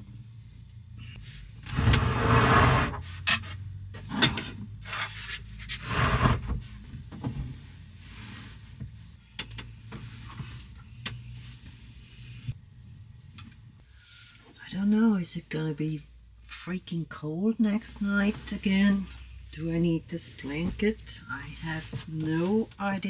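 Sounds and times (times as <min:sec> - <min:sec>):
knocks and rubbing: 0:01.7 - 0:03.1, 0:05.6 - 0:06.7.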